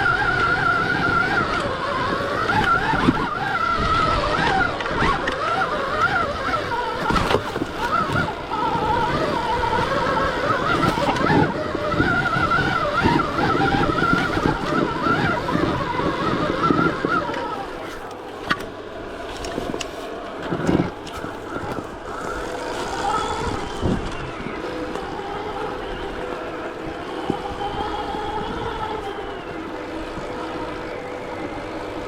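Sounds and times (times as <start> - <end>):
electric motorbike motor whining: 0.0 - 32.0
rough rumble: 0.0 - 32.0.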